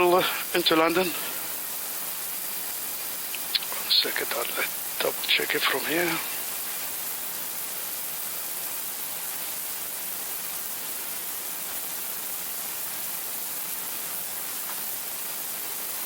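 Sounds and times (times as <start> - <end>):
steady air hiss: 0.0 - 16.0.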